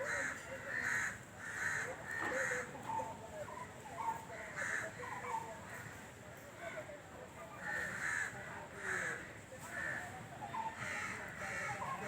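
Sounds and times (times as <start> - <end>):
crows cawing: 0.0 - 2.7, 7.6 - 9.2.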